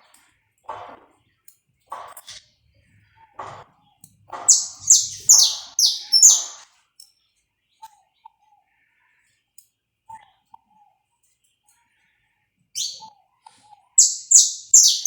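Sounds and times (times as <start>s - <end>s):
finch singing: 4.4s - 6.6s, 12.8s - 13.1s, 14.0s - 15.0s.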